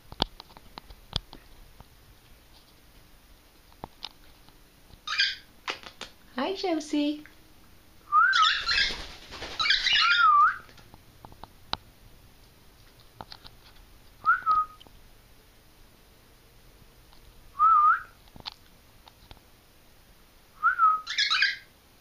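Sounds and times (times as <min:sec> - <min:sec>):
cockatiel whistling: 0:08.1 - 0:08.9, 0:09.6 - 0:10.7, 0:14.2 - 0:14.8, 0:20.6 - 0:21.7
cockatiel raspy chirp: 0:21.0 - 0:21.7.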